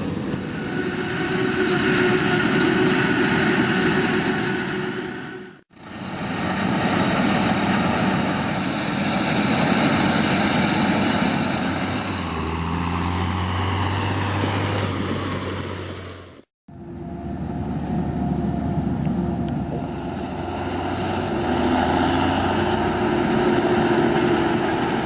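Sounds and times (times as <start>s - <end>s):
heavy farm machinery running: 0.0s - 25.0s
deep engine hum: 16.7s - 25.0s.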